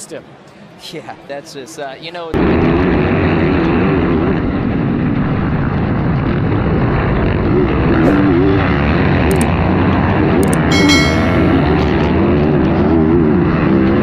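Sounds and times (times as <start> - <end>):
sharp clicks: 10.4 - 10.8.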